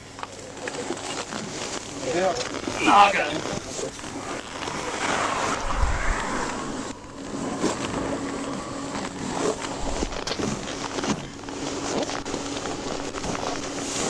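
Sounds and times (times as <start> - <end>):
wind on microphone: 3.6 - 14.0.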